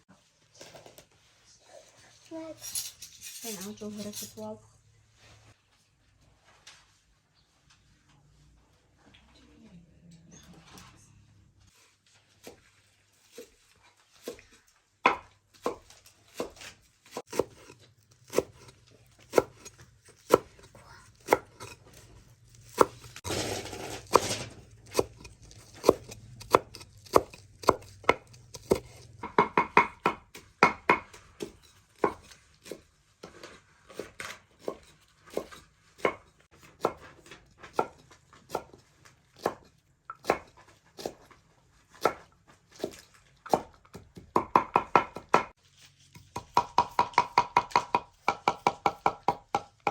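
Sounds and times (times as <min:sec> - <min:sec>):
knife chopping on cutting board: 0:15.1 - 0:22.0, 0:23.8 - 0:38.8, 0:39.4 - 0:41.3, 0:41.9 - 0:45.5, 0:46.2 - 0:49.9.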